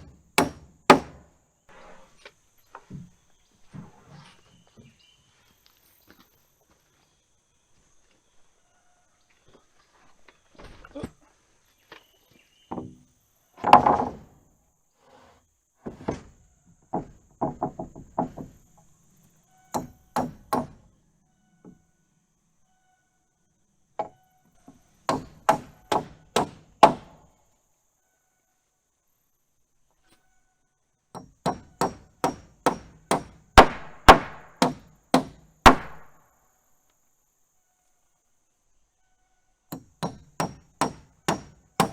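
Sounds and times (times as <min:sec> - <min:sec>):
hammer driving nails into wood: 0:00.0 - 0:01.3, 0:19.7 - 0:20.8, 0:25.1 - 0:27.2, 0:31.1 - 0:36.1, 0:39.7 - 0:41.9.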